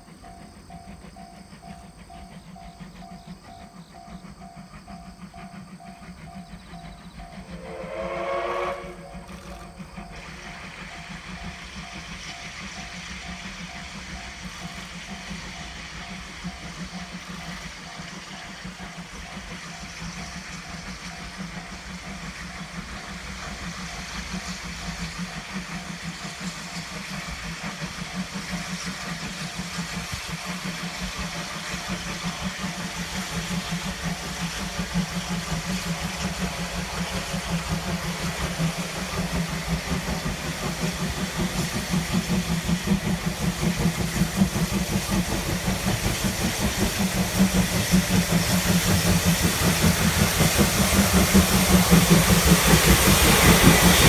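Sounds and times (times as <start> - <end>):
steam locomotive exhaust beats: 0.0 - 54.0.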